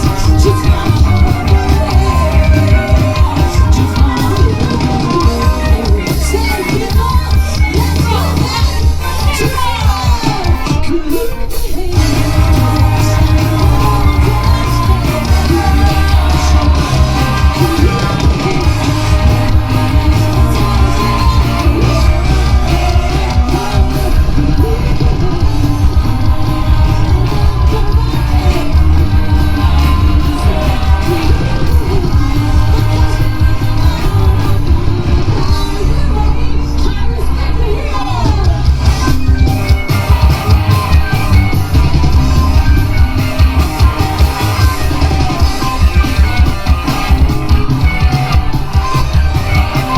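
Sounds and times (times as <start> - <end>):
woman singing: 0.0 - 40.8
bass guitar: 0.0 - 49.9
drums: 0.0 - 49.9
electric guitars: 0.0 - 49.9.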